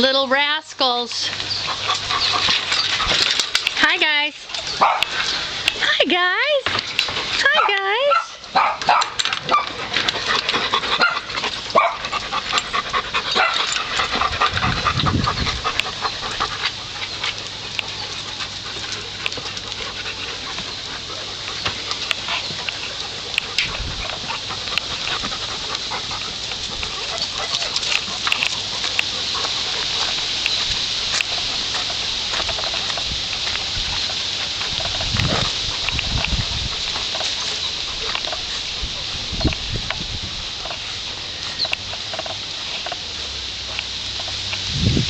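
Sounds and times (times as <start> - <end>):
steady hiss with ticks: 0.0 - 45.0
small dogs making sounds: 1.2 - 39.7.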